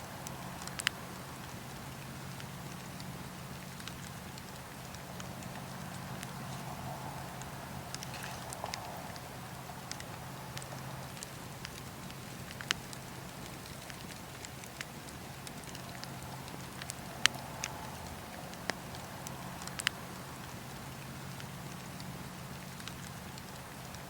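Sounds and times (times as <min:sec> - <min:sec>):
campfire crackling: 0:00.0 - 0:24.0
fire popping: 0:00.1 - 0:24.0.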